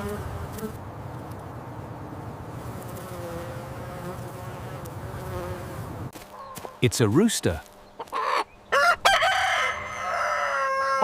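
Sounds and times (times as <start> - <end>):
bee buzzing: 0.0 - 0.9, 1.6 - 6.6.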